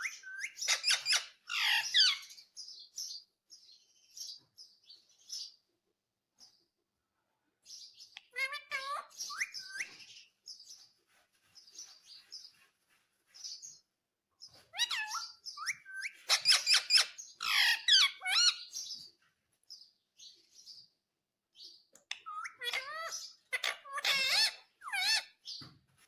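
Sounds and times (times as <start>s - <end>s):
parrot chirping and squawking: 0.0s - 2.5s, 8.2s - 10.1s, 14.6s - 18.9s, 22.1s - 25.5s.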